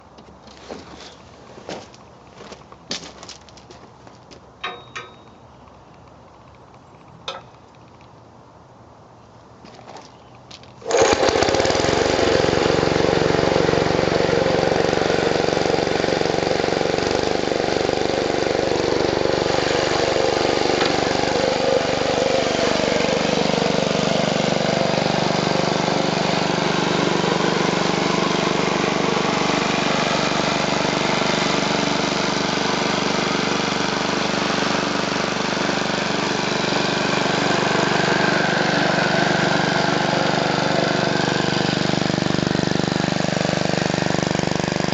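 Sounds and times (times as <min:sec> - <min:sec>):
single-cylinder engine running: 0:10.8 - 0:44.9.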